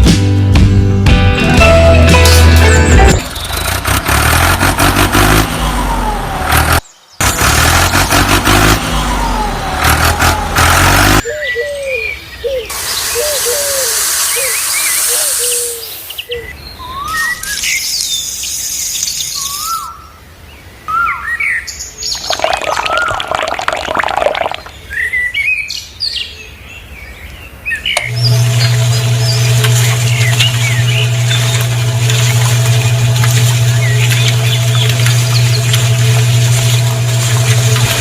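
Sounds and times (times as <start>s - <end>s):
background music: 0.0s - 3.3s
high bird chirps: 11.2s - 20.1s
hiss: 12.7s - 16.2s.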